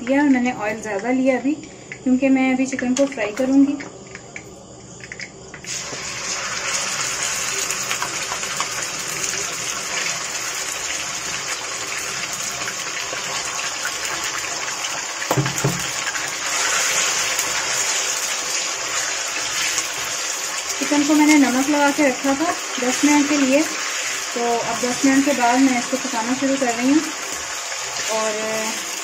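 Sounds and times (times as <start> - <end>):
chicken sizzling in hot oil: 5.6 - 29.0
brief knock: 15.3 - 15.9.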